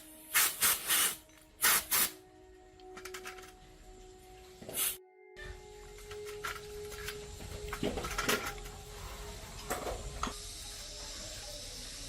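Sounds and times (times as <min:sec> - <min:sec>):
metal parts clinking: 0:02.9 - 0:03.6, 0:05.9 - 0:08.9
steady hiss: 0:08.9 - 0:12.0.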